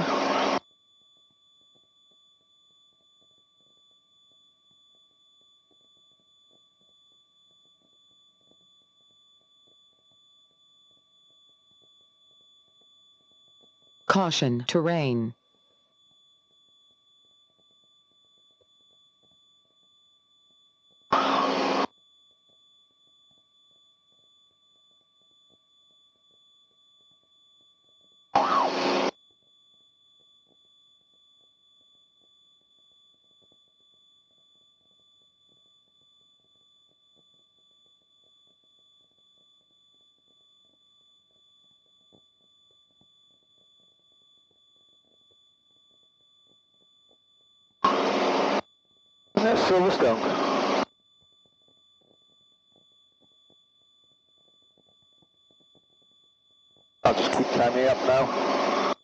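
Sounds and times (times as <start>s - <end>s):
high-pitched electrical whine: 0.0s - 0.6s, 21.1s - 21.9s, 28.4s - 29.1s, 47.8s - 48.7s, 49.4s - 50.9s, 57.0s - 59.0s
faint crackle: 15.4s - 59.0s
radio squelch burst: 49.4s - 50.8s, 57.0s - 59.0s.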